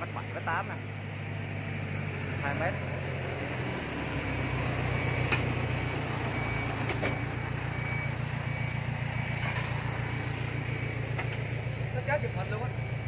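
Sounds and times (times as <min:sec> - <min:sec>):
vehicle engine running: 0:00.0 - 0:13.0
high warning beep: 0:06.3 - 0:09.6.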